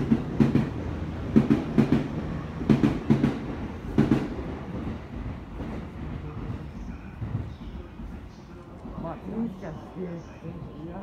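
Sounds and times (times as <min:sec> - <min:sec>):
low train rumble: 0:00.0 - 0:11.0.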